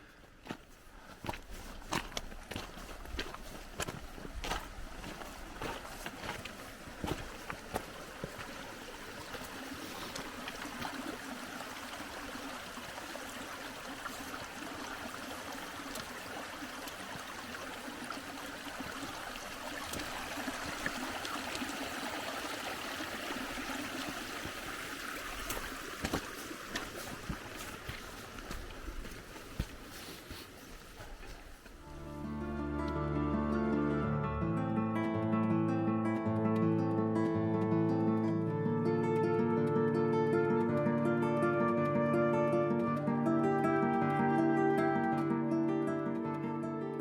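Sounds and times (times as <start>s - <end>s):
mountain stream rushing: 0.0s - 32.6s.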